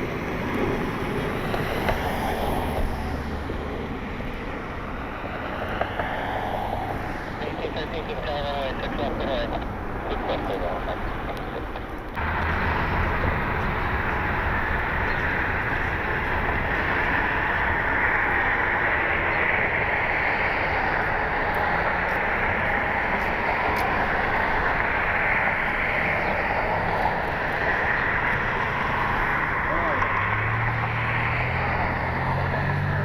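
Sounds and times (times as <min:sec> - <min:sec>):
jet engines rushing: 0:00.0 - 0:33.0
low rumble: 0:07.5 - 0:29.7.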